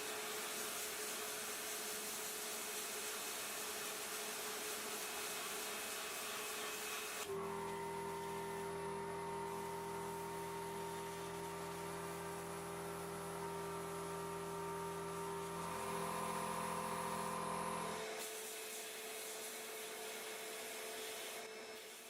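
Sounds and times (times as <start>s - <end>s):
electric motor humming: 7.2s - 18.2s.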